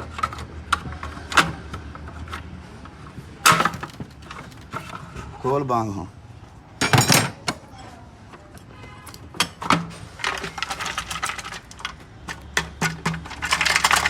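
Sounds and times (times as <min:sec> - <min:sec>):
metal clatter: 0:03.4 - 0:05.0, 0:06.8 - 0:07.6, 0:09.4 - 0:14.0.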